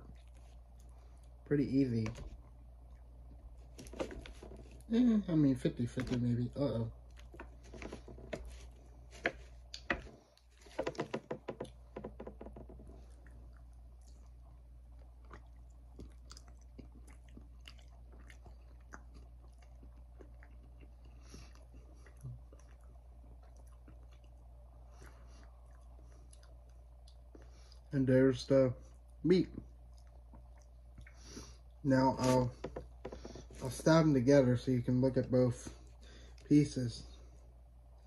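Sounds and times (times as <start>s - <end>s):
person chewing food: 0.0s - 1.4s, 2.2s - 4.9s, 6.9s - 27.9s, 28.8s - 31.8s.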